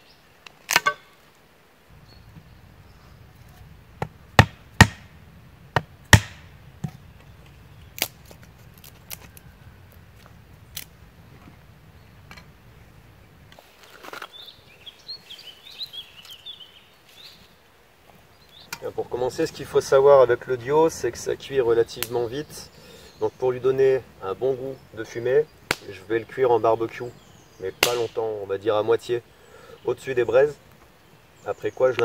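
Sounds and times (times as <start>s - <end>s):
knife splitting wood knocks: 4.0s - 5.1s, 5.8s - 7.0s
crackling and rustling: 6.2s - 16.4s.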